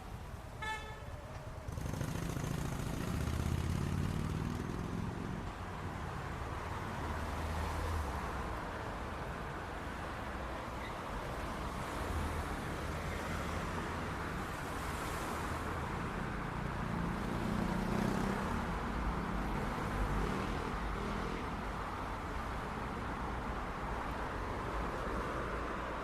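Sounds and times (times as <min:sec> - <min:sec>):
rumble of cars going by: 0:00.0 - 0:26.0
vehicle engine passing: 0:01.7 - 0:05.3.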